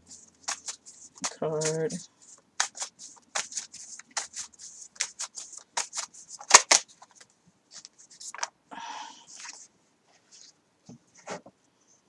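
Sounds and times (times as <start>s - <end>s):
cards being shuffled: 0.1s - 8.5s, 9.3s - 9.6s.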